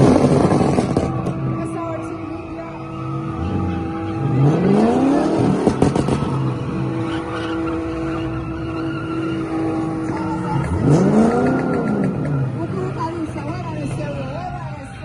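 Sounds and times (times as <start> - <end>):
exhaust cracks: 0.0 - 1.7, 5.2 - 9.0
car engine idling and revving: 0.0 - 15.0.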